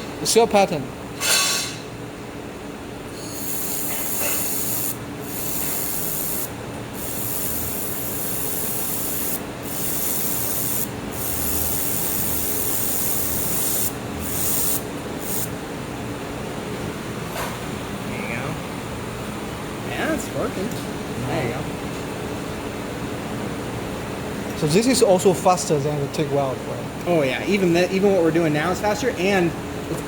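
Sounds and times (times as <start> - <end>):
machine hum: 2.8 - 17.2
welder hissing crackle: 3.2 - 15.5.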